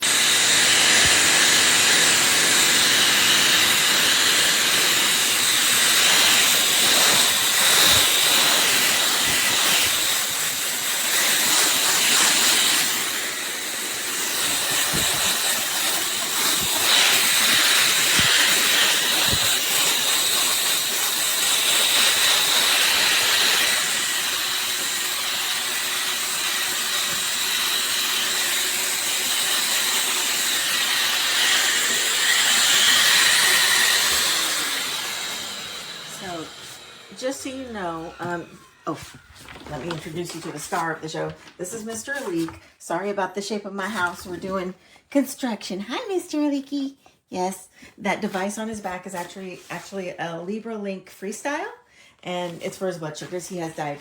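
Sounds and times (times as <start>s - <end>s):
pet dryer blowing air: 0.0s - 42.6s.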